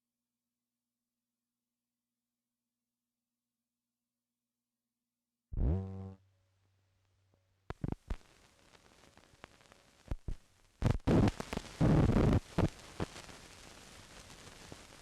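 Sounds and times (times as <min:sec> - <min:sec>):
film soundtrack hiss and crackles: 0:07.7 - 0:15.0
pops and thumps: 0:10.1 - 0:10.4.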